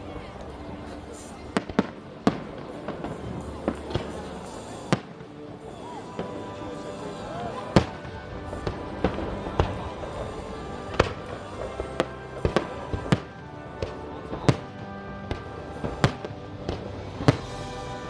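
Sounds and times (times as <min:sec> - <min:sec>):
music playing: 0:00.0 - 0:18.0
fireworks bangs: 0:07.8 - 0:18.0.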